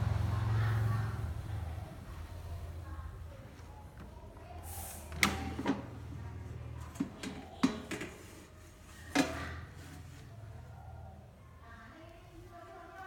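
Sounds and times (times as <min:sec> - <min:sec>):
air fryer clicks and knocks: 0:05.1 - 0:06.0, 0:06.9 - 0:08.3, 0:09.1 - 0:09.6.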